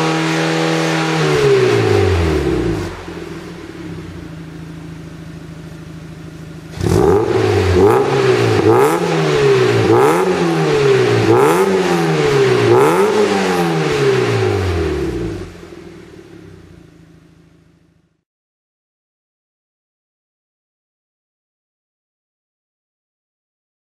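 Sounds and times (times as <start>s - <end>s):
car engine idling and revving: 0.0s - 18.2s.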